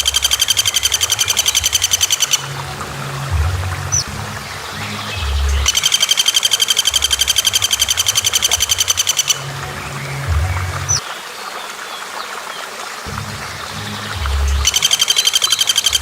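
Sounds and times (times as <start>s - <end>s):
bird rattling trill: 0.0s - 2.7s, 3.8s - 9.4s, 14.6s - 16.0s
low hum: 0.0s - 11.0s, 13.1s - 15.3s.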